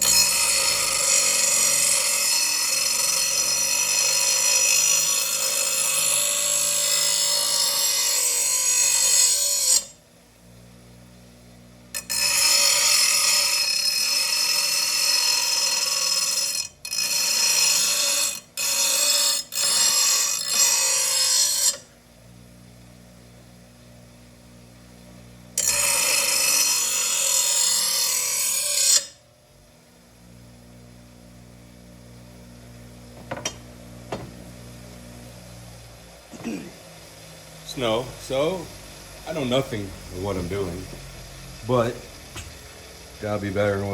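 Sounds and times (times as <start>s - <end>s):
grinder grinding metal blade: 0.0s - 10.0s, 11.9s - 21.9s, 25.6s - 29.2s, 33.1s - 34.3s, 36.3s - 43.9s
grinder motor humming unloaded: 0.0s - 10.0s, 25.6s - 29.2s, 32.8s - 43.9s.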